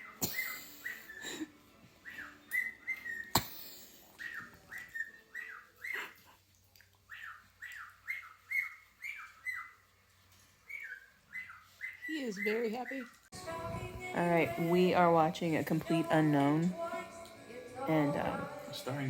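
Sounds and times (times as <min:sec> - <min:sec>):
bird chirping: 0:02.0 - 0:06.2, 0:07.1 - 0:13.4.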